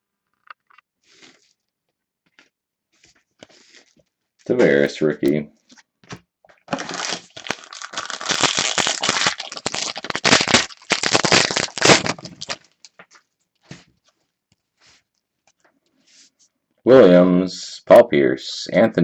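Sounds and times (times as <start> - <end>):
wrapper tearing and crinkling: 6.7 - 13.0.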